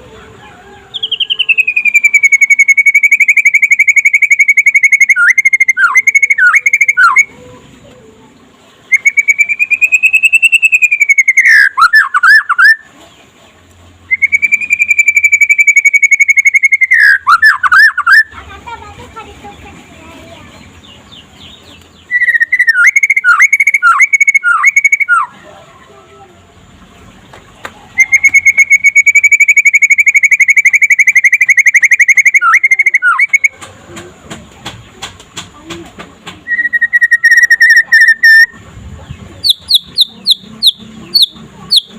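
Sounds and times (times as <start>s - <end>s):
songbird singing trills: 0.6s - 18.4s, 19.5s - 33.6s, 36.4s - 41.9s.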